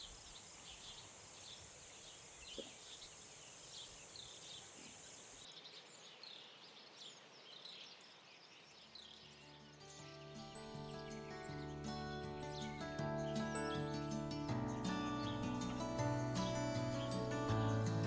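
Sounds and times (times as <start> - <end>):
steady high hiss: 0.0 - 5.5
small birds chirping: 0.0 - 18.0.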